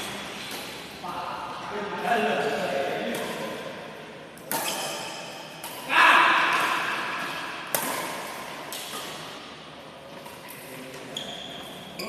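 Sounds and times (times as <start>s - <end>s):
badminton racket hitting shuttlecock: 4.4s - 9.6s.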